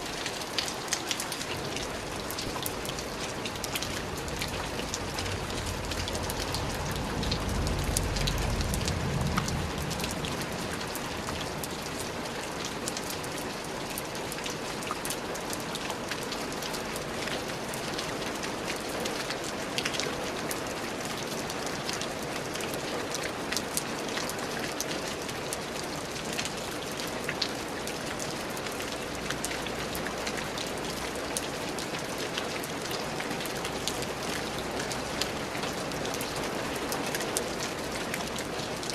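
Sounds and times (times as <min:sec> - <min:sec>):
rain with ticking drops: 0:00.0 - 0:38.9
low rumble: 0:04.9 - 0:10.9.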